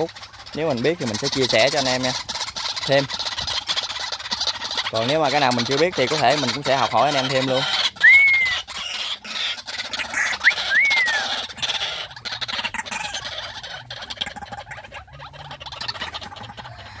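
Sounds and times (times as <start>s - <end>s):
bird whistled call: 8.0s - 8.7s, 10.2s - 11.4s.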